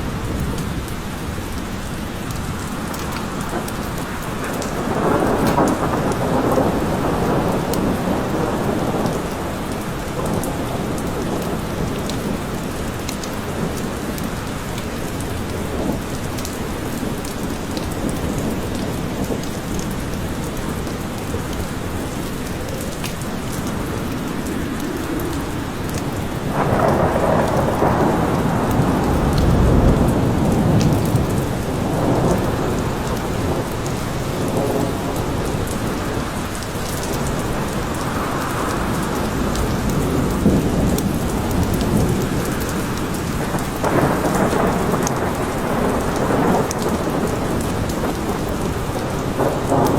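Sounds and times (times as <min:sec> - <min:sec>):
steady rain falling: 0:00.0 - 0:49.9
raindrops ticking: 0:00.1 - 0:49.9
thunder rolling: 0:02.5 - 0:14.2, 0:23.6 - 0:49.9.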